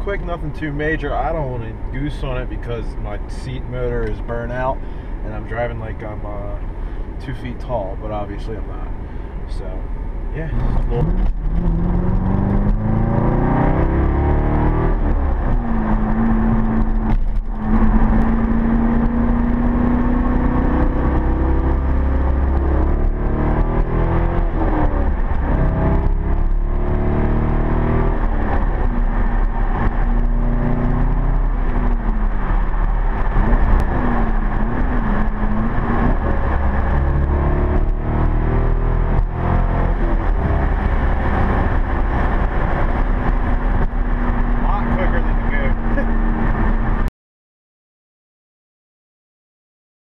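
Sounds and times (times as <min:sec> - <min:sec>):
car engine accelerating: 0:00.0 - 0:47.1.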